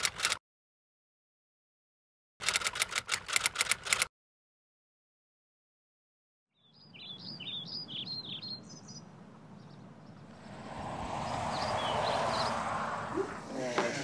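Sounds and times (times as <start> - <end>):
songbird chirping: 6.5 - 13.5
outdoor noise rush: 9.0 - 14.0.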